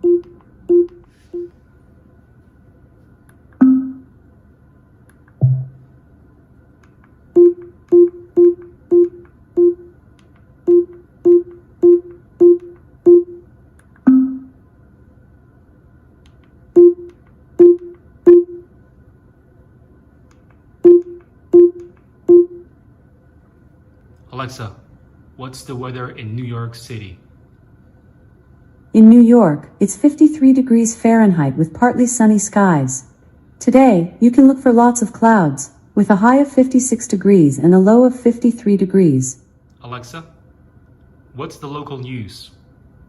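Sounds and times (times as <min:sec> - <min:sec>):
smart speaker feedback tones: 0:05.4 - 0:05.8.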